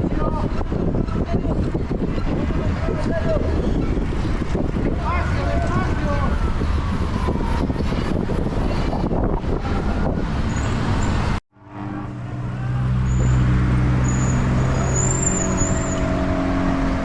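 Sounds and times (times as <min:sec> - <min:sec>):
vehicle engine humming: 0:03.6 - 0:17.0.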